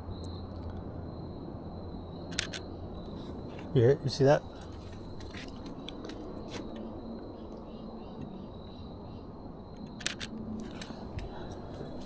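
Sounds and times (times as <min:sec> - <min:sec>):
outdoor background hiss: 0:00.0 - 0:12.0
camera shutter double click: 0:02.3 - 0:02.6, 0:09.9 - 0:10.3.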